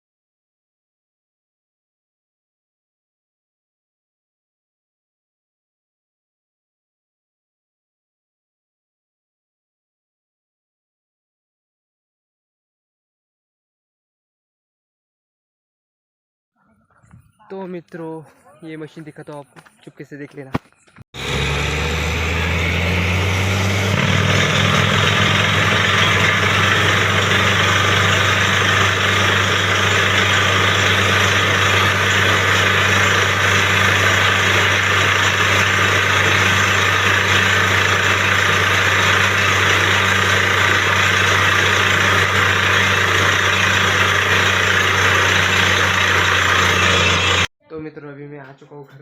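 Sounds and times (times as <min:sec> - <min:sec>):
drilling rushing noise: 0:21.2 - 0:47.5
heavy engine drone: 0:21.2 - 0:47.5.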